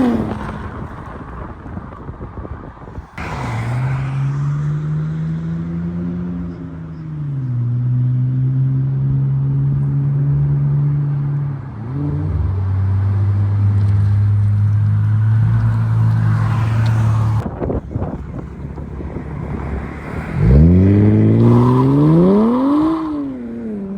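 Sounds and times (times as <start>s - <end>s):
rough uneven engine rumble: 12.9s - 20.7s.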